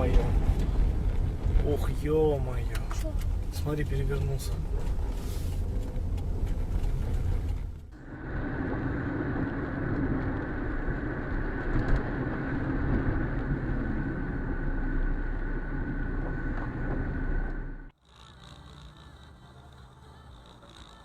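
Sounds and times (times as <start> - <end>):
car road and engine noise: 0.0 - 21.0
thin whine: 8.0 - 21.0.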